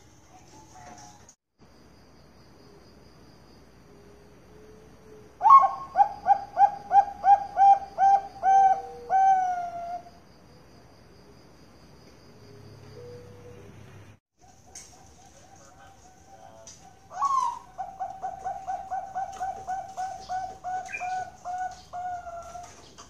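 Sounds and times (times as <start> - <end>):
dove cooing song: 4.5 - 10.1, 12.5 - 13.8, 14.4 - 23.0.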